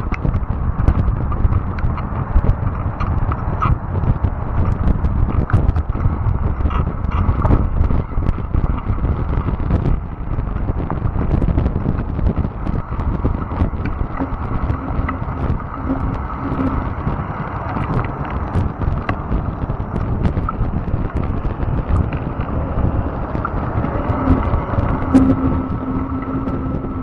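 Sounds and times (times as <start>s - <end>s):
bike tyres rumbling on trail: 0.0s - 27.0s
wind on microphone: 0.0s - 27.0s
electric motor hum: 12.7s - 27.0s.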